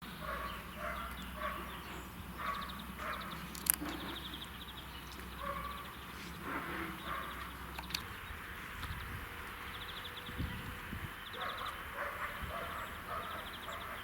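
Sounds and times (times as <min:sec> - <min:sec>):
rattling chirps: 0:01.9 - 0:04.5.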